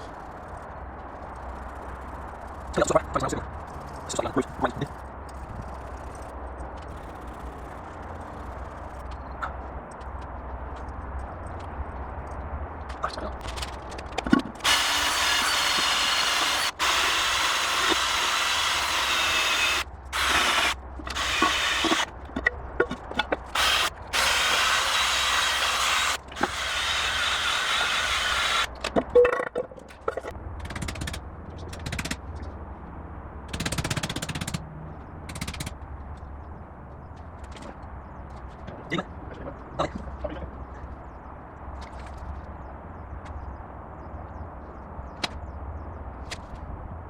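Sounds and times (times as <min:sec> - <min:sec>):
power tool running: 0:14.6 - 0:22.1, 0:23.5 - 0:28.7.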